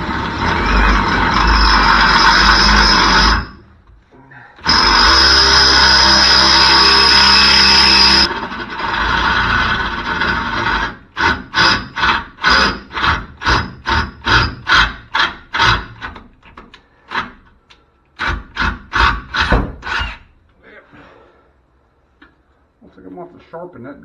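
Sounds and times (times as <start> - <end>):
hand tool rasping on metal: 0.0 - 3.6, 4.6 - 8.3, 8.9 - 16.1.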